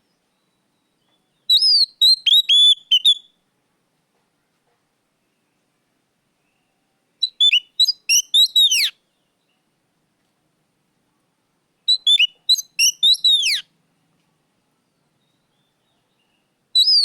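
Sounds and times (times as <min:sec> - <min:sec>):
bird singing whistled phrases: 0:00.4 - 0:03.3, 0:07.2 - 0:09.0, 0:11.9 - 0:13.6, 0:16.8 - 0:17.0.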